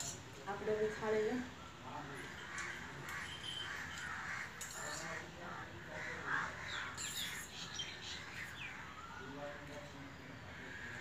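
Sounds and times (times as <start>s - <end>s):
harsh bird calls: 1.6s - 11.0s
high bird chirps: 6.6s - 9.2s.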